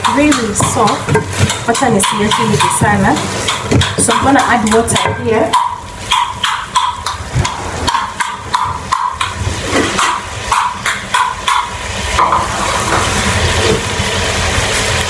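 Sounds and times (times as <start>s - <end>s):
metal spoon knocking in pot: 0.0s - 12.5s
water hissing in hot pot: 0.0s - 15.0s.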